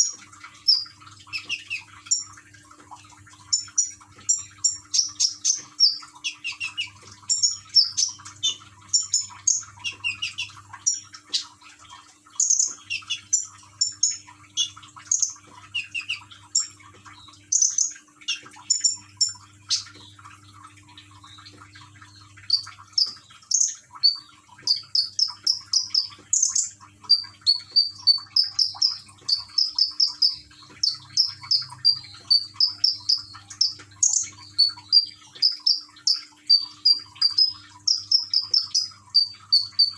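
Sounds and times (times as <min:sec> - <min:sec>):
bird chirping: 0:04.6 - 0:11.5, 0:12.4 - 0:19.9, 0:22.5 - 0:39.9.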